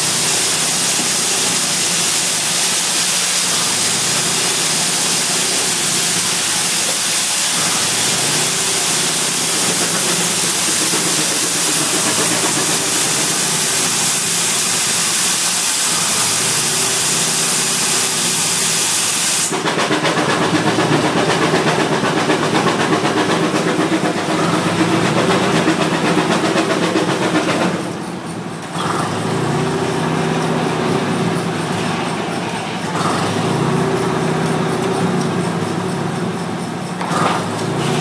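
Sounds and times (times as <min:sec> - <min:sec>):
steam engine beat: 0:00.0 - 0:38.0
steam hissing: 0:00.0 - 0:38.0.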